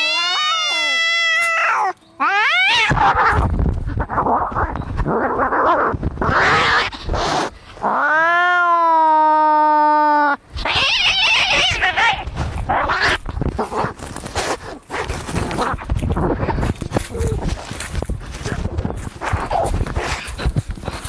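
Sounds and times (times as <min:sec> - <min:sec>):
cat yowling: 0:00.0 - 0:03.4, 0:07.9 - 0:12.2
cats fighting: 0:00.0 - 0:09.4, 0:10.5 - 0:21.0.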